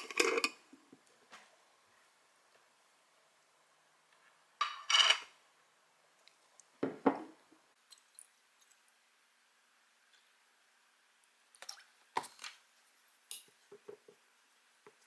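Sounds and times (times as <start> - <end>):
kitchenware clattering: 4.6 - 5.3.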